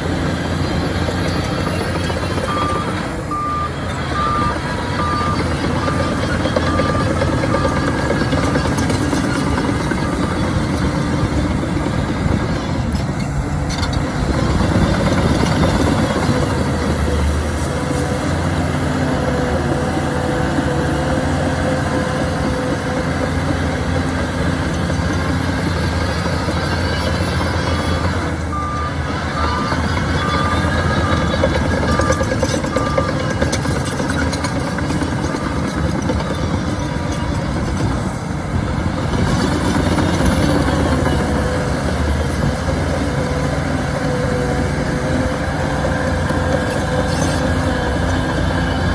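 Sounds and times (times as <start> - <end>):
bulldozer diesel engine under load: 0.0 - 48.9
reversing alarm beeping: 0.9 - 10.4, 26.0 - 36.7.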